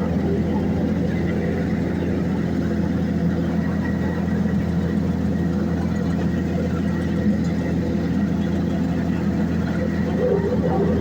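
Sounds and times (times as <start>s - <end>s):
heavy paving machine engine running: 0.0s - 11.0s.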